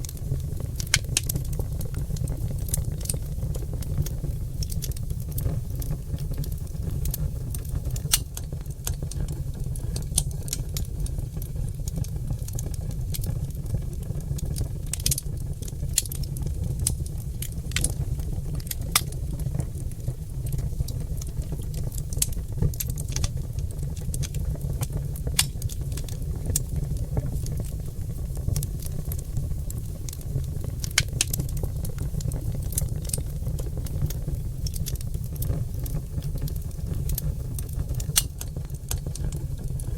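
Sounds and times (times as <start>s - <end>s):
logs crackling and popping in fireplace: 0.0s - 39.9s.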